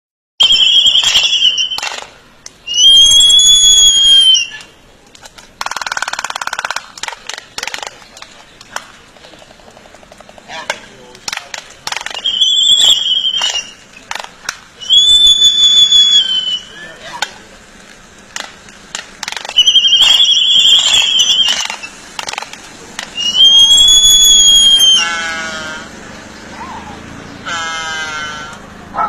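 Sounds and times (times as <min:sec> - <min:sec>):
bird whistled notes: 0:00.4 - 0:02.0, 0:02.7 - 0:04.7, 0:12.0 - 0:13.8, 0:14.8 - 0:17.0, 0:19.5 - 0:22.0, 0:23.2 - 0:25.1
harsh rattling bird call: 0:05.6 - 0:11.1, 0:23.1 - 0:28.8.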